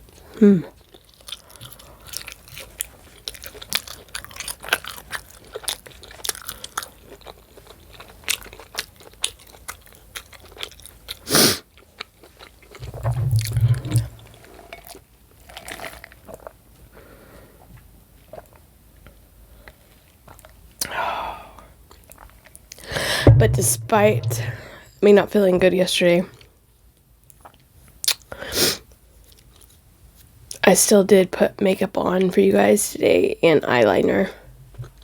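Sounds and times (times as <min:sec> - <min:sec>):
chewing food: 0:00.0 - 0:13.4, 0:14.0 - 0:20.9, 0:21.6 - 0:22.9, 0:27.2 - 0:28.4, 0:29.2 - 0:30.6
brief low hum: 0:23.1 - 0:25.0.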